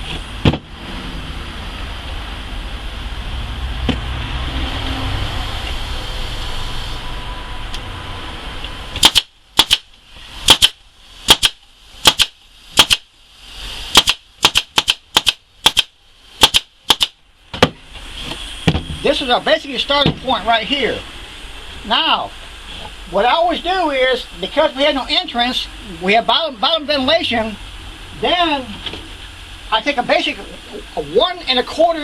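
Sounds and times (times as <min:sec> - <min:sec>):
low rumble: 0:00.7 - 0:09.0
staple gun shots: 0:09.0 - 0:09.9, 0:10.5 - 0:13.1, 0:13.9 - 0:17.2.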